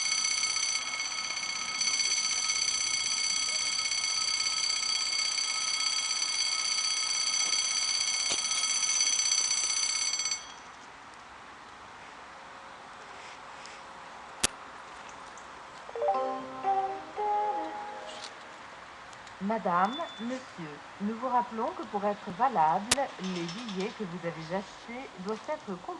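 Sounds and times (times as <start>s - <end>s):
railway warning bell ringing: 0.0s - 10.7s, 19.8s - 20.4s.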